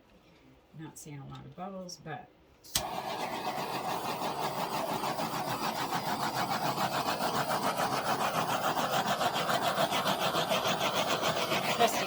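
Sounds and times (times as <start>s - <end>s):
torch flame hissing: 2.7s - 12.0s.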